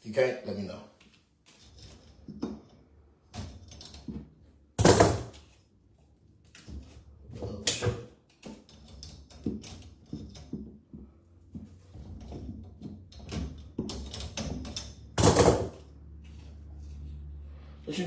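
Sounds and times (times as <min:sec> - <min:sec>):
tools knocking in cabinet: 0:04.1 - 0:05.4, 0:09.4 - 0:15.8.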